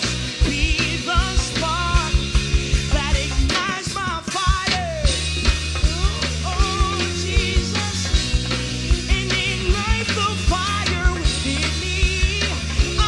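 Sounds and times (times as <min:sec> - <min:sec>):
bass and keyboard chords: 0:00.0 - 0:13.0
drum kit beat: 0:00.0 - 0:13.0.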